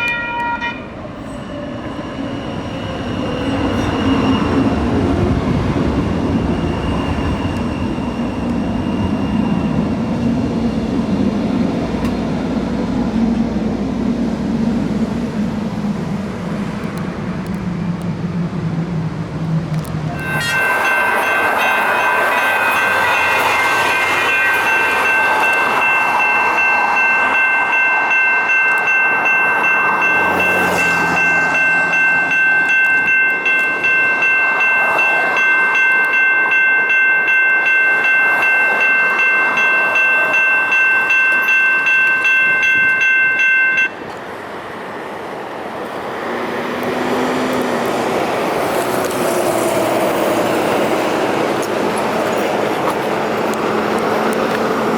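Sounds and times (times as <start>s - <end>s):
railroad crossing bell ringing: 0.0s - 11.2s, 20.1s - 44.2s
train passing on rails: 0.0s - 54.9s.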